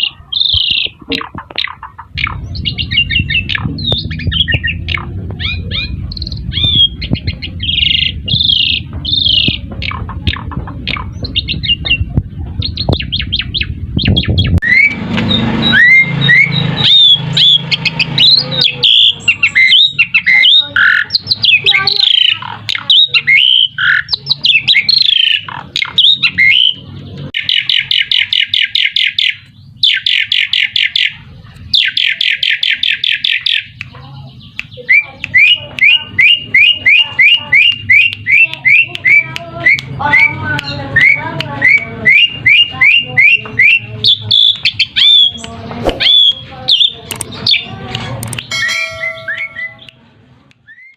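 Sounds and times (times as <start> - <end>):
starling singing: 0.0 - 50.9
low rumble: 0.2 - 18.5.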